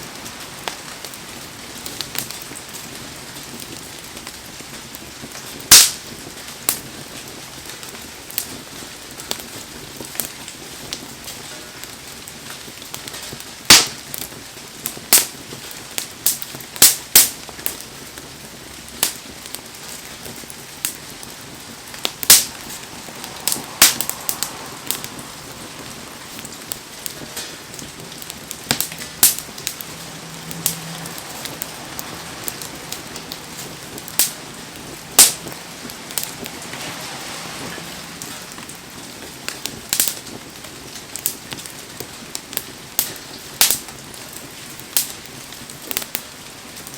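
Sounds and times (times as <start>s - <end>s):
heavy rain hissing: 0.0s - 46.9s
wood bonfire crackling and popping: 0.0s - 46.9s.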